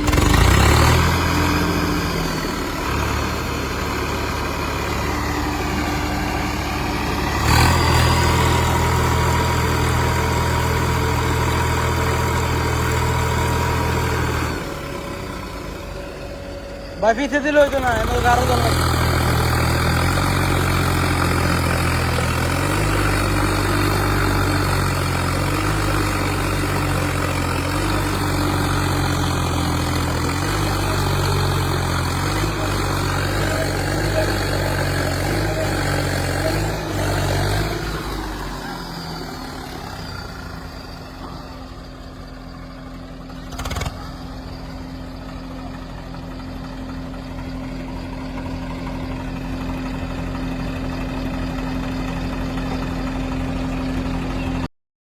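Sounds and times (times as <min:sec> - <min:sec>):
diesel engine running: 0:00.0 - 0:54.7.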